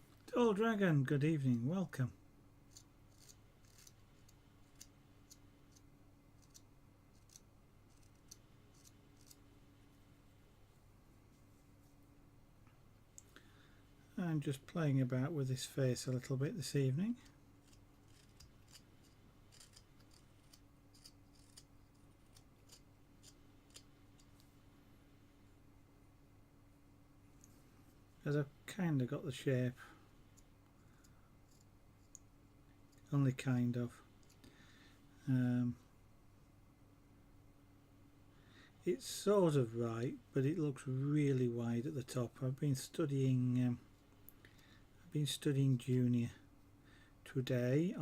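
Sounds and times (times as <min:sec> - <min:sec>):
faint low hum: 0:00.0 - 0:48.0
knife carving wood: 0:02.7 - 0:09.5, 0:17.1 - 0:24.5, 0:31.5 - 0:32.2.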